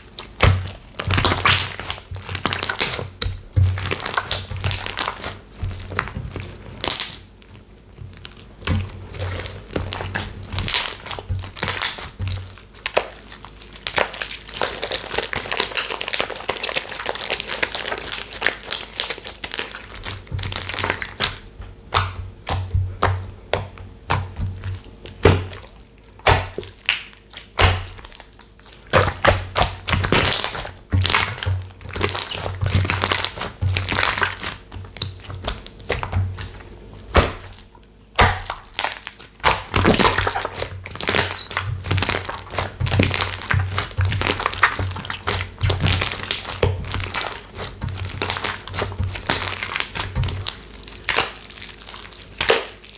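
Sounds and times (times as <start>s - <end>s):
slime crackling and popping: 0.0s - 52.9s
soft low thuds: 21.4s - 24.8s.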